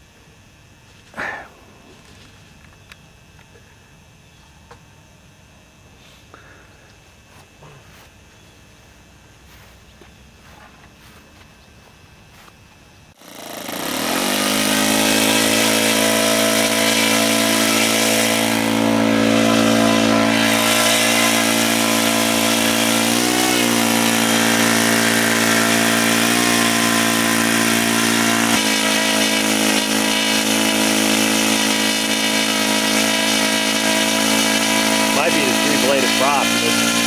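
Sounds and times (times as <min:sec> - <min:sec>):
model airplane engine running: 0:13.2 - 0:37.0.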